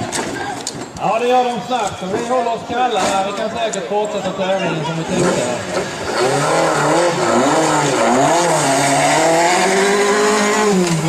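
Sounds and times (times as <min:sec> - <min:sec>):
rally car engine revving: 0:05.0 - 0:11.0.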